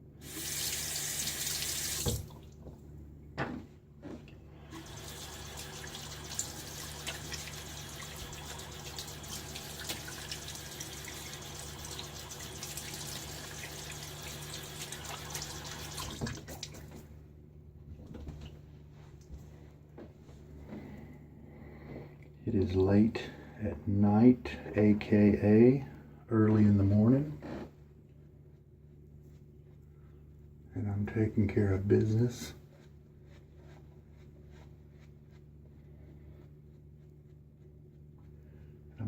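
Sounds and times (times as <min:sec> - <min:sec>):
tap water running into sink: 0:00.2 - 0:02.6, 0:04.7 - 0:17.0.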